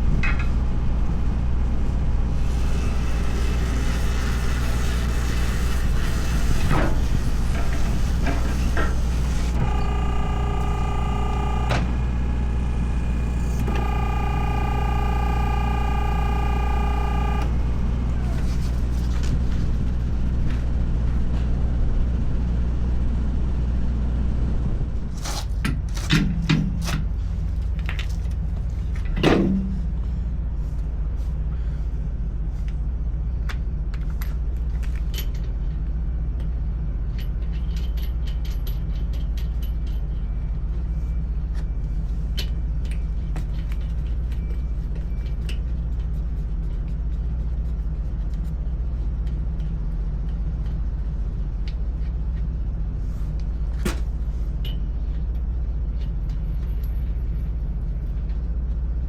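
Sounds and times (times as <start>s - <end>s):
engine idling: 2.2s - 20.6s.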